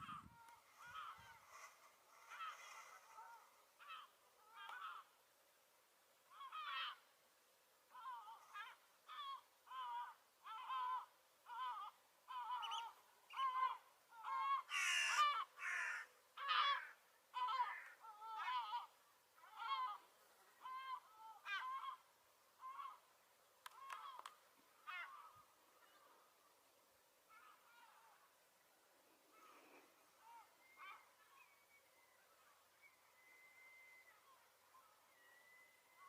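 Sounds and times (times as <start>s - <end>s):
gull calling: 0.0s - 5.1s, 7.9s - 23.1s.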